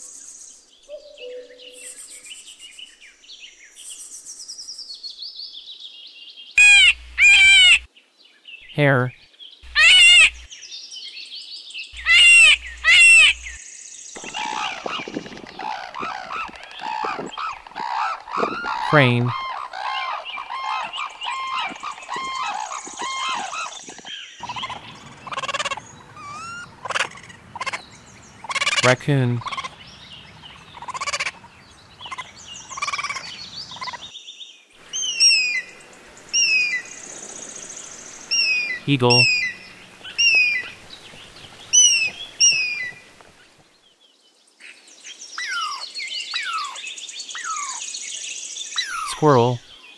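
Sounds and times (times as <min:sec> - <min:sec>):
bird calls: 0:00.0 - 0:05.0, 0:06.6 - 0:07.9, 0:08.6 - 0:10.6, 0:12.0 - 0:34.2, 0:34.8 - 0:43.9, 0:44.7 - 0:49.9
person saying single words: 0:18.8 - 0:19.3, 0:38.8 - 0:39.3, 0:49.1 - 0:49.6.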